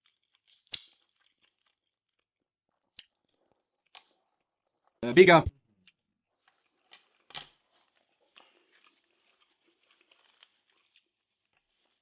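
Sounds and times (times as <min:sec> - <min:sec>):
soft rustle: 0:06.3 - 0:12.0.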